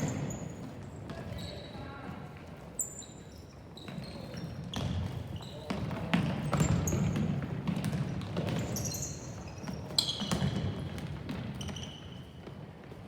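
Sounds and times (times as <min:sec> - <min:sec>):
shoes squeaking on gym floor: 0:00.0 - 0:02.1, 0:02.7 - 0:13.0
ball bounces and thuds: 0:06.2 - 0:08.9.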